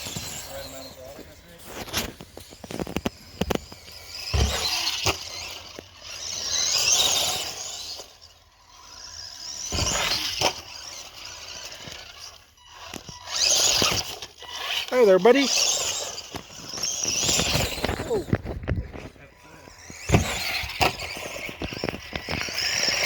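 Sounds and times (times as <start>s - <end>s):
rc truck motor and gear whine: 0.0s - 23.0s
knocks and a thump: 4.3s - 5.2s, 20.0s - 21.0s.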